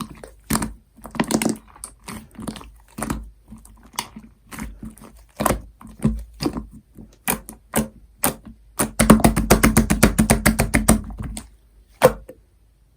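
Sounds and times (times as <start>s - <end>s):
slime squished by hand: 0.0s - 12.3s.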